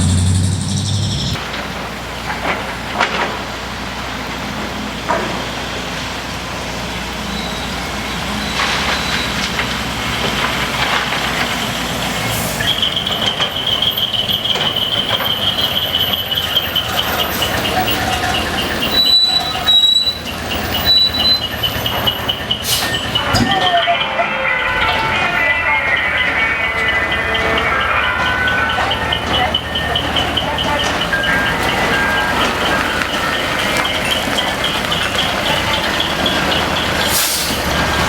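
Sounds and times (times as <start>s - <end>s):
high pulsing chirping tone: 0.0s - 1.4s
heavy truck engine running: 0.0s - 38.0s.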